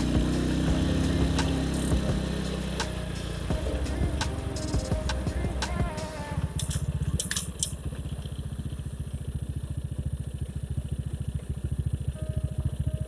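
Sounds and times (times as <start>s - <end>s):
motorcycle engine idling: 0.0s - 13.0s
sharp clicks: 6.4s - 7.8s.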